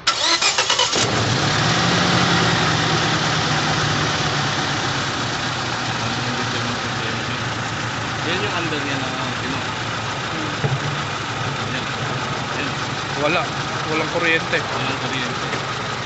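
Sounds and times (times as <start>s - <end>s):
engine starter cranking: 0.0s - 1.6s
misfiring engine idling: 0.0s - 16.0s.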